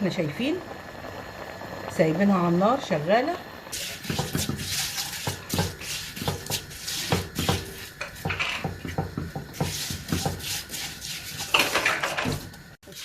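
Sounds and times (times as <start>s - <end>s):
sizzling in oil: 0.0s - 13.0s
spoon scraping and knocking a pot: 3.8s - 13.0s.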